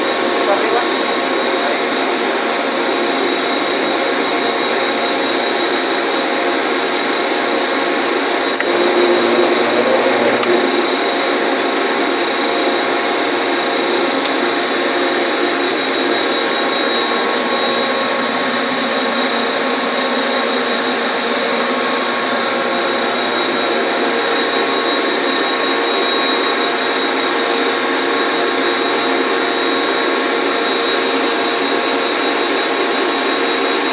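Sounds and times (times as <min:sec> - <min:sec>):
electric motor whining: 0:00.0 - 0:20.0.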